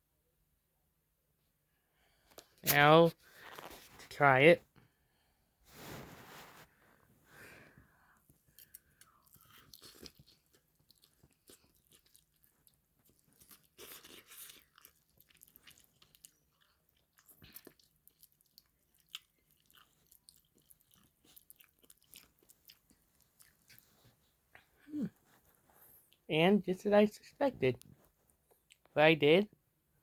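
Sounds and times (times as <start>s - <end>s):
close-up chewing: 6.8s - 26.3s
mouth clicks and crunches: 8.3s - 26.2s.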